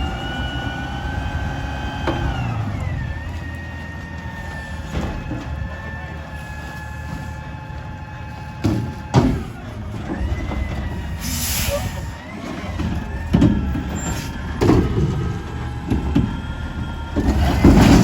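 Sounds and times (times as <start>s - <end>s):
garbage truck diesel rumble: 0.0s - 18.0s
short air hiss: 11.2s - 12.0s.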